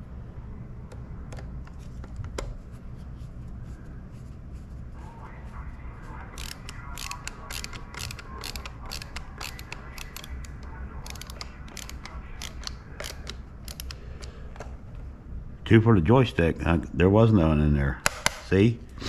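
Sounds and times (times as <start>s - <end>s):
screwdriver ratchet clicks: 6.4s - 14.3s.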